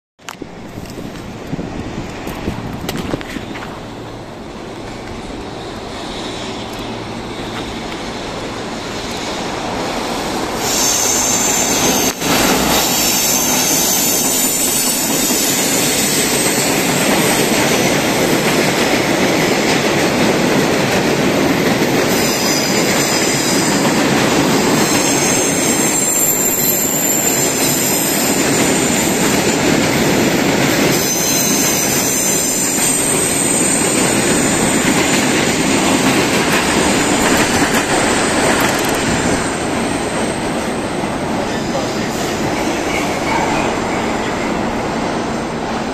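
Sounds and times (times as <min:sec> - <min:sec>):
train wheels rumbling on rail: 0:00.2 - 0:45.9
high-pitched wheel squeal: 0:10.6 - 0:17.0, 0:22.1 - 0:24.0, 0:24.6 - 0:29.6, 0:30.9 - 0:35.3.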